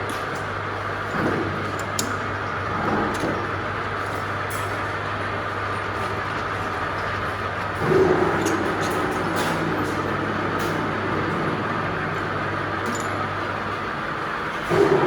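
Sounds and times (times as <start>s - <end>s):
lathe motor hum and whirring: 0.2s - 15.0s.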